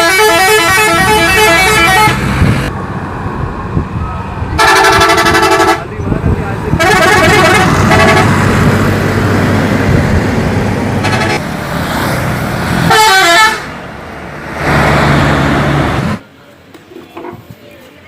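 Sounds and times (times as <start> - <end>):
bus horn blasts: 0.0 - 2.2, 4.6 - 5.9, 6.8 - 8.4, 11.0 - 11.4, 12.9 - 13.8
bus engine running: 0.0 - 16.7.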